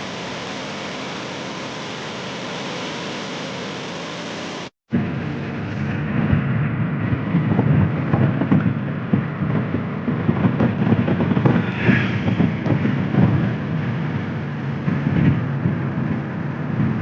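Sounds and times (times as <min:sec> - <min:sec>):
vehicle rumbling on rough road: 0:00.0 - 0:17.0
wind on microphone: 0:04.9 - 0:17.0.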